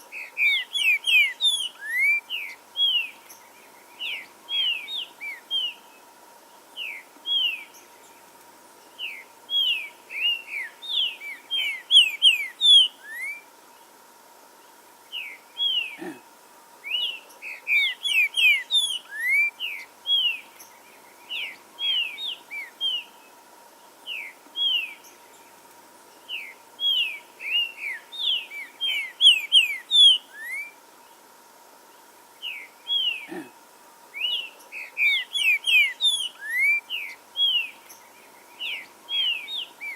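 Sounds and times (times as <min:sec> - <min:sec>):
faint steady hum: 0:00.0 - 0:39.9
bird singing whistled notes: 0:00.1 - 0:05.9, 0:06.8 - 0:07.9, 0:09.0 - 0:13.5, 0:16.8 - 0:23.2, 0:24.0 - 0:25.5, 0:26.3 - 0:30.8, 0:34.2 - 0:39.9.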